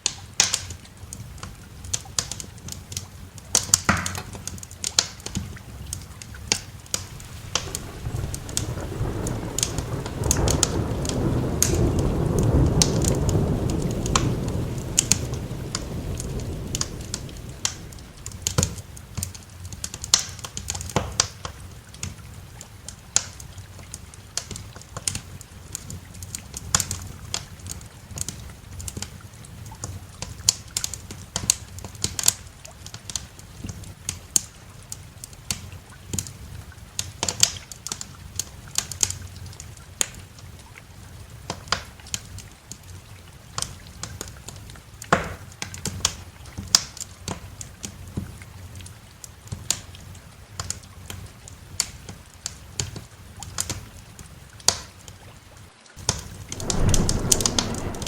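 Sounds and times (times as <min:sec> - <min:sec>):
faint rain hiss: 0:00.0 - 0:58.0
wood fire crackling: 0:04.4 - 0:22.2, 0:56.0 - 0:58.0
thunder rolling: 0:07.1 - 0:19.3, 0:56.0 - 0:58.0.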